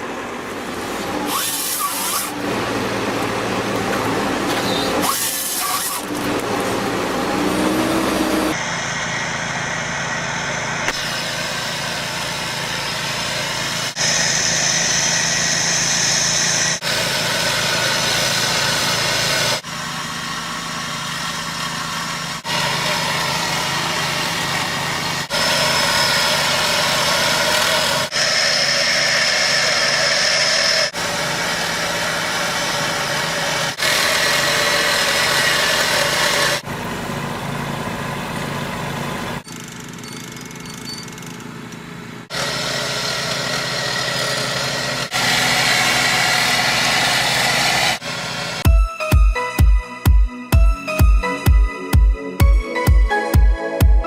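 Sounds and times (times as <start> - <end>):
high-pitched whine: 0.0 - 19.7
heavy machinery engines running: 0.0 - 54.0.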